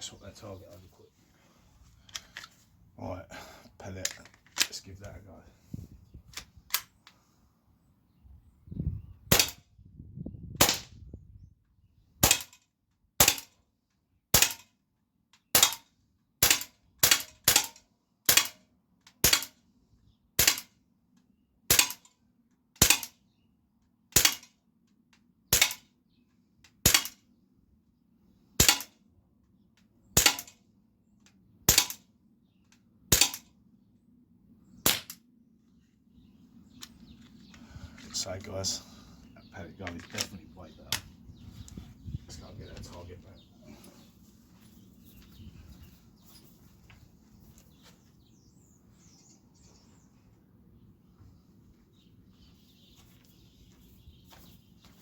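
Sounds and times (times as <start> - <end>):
air pistol shots: 9.3 - 9.6, 10.6 - 10.9, 12.2 - 12.6, 13.2 - 13.5, 14.3 - 14.6, 16.4 - 18.6, 19.2 - 19.5, 20.4 - 20.7, 21.7 - 22.0, 22.8 - 23.2, 24.2 - 24.5, 25.5 - 25.8, 26.8 - 27.2, 28.6 - 28.9, 30.2 - 30.5, 31.7 - 32.0, 33.1 - 33.4, 34.8 - 35.2.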